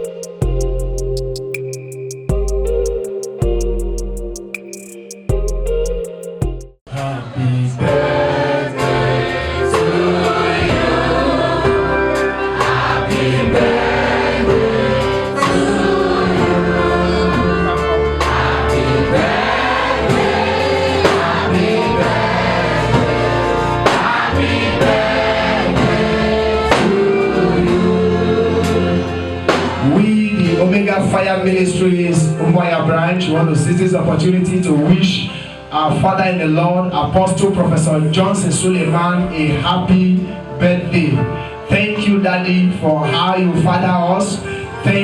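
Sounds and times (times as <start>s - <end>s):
band with steady beat: 0.0s - 6.8s, 12.2s - 29.9s
gospel choir singing: 6.9s - 30.8s.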